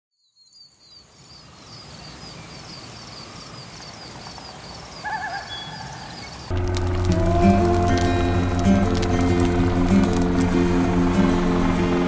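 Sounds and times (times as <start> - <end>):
music: 6.5 - 12.0.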